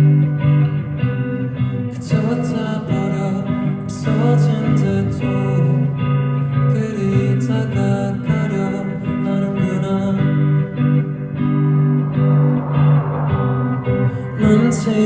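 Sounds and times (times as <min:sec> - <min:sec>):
cymbals: 0:09.9 - 0:15.0.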